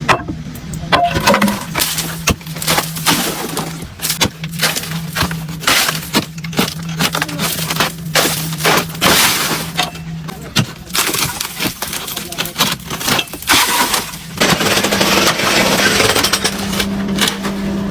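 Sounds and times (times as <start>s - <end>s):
steady machine hum: 0.0s - 17.9s
coal lumps crashing and clattering: 0.9s - 17.9s.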